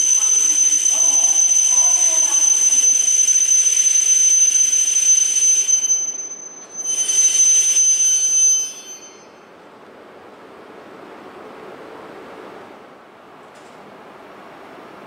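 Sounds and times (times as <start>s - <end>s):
train high-pitched squeal: 0.0s - 9.6s.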